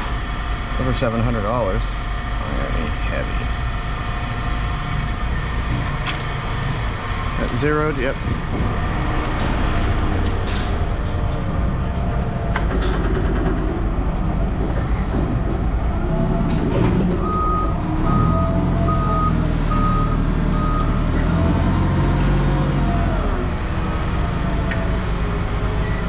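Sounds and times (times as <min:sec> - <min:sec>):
truck engine rumbling: 0:00.0 - 0:26.0
reversing alarm beeping: 0:16.5 - 0:21.4.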